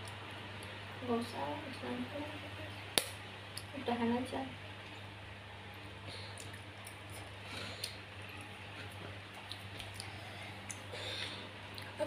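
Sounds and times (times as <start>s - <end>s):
steady low hum: 0.0s - 12.0s
wet chewing and mouth sounds: 6.1s - 12.0s.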